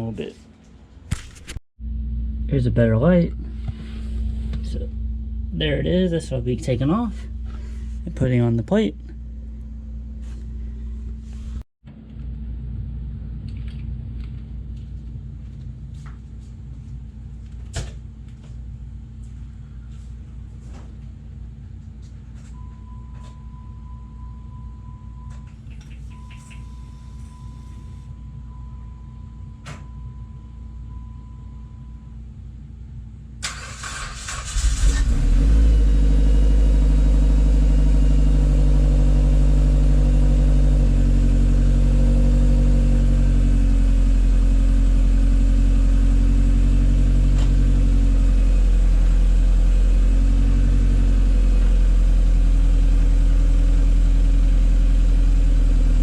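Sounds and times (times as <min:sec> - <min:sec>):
engine idling rumble: 0:01.8 - 0:16.5, 0:33.5 - 0:56.0
car engine starting: 0:33.4 - 0:56.0.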